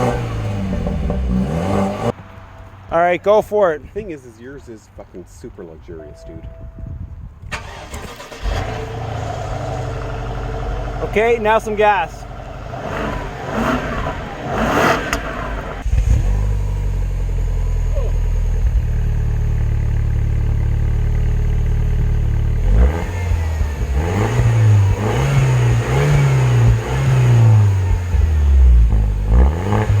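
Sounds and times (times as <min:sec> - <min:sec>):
car engine revving: 0:00.0 - 0:02.2, 0:07.6 - 0:19.5, 0:21.0 - 0:30.0
car engine starting and idling: 0:00.0 - 0:02.8, 0:07.4 - 0:30.0.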